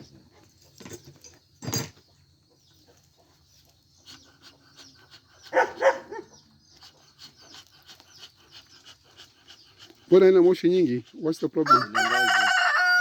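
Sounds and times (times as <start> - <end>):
dog barking: 5.4 - 6.4.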